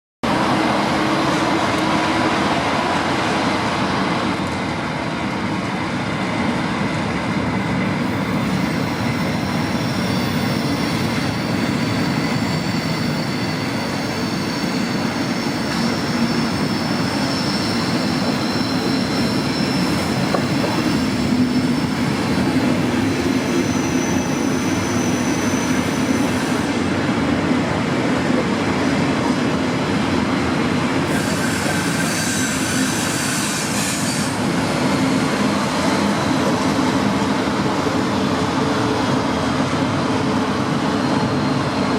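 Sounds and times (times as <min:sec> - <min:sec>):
train rolling past: 0:00.2 - 0:41.9
faint high wheel squeal: 0:08.0 - 0:26.8, 0:31.1 - 0:37.0.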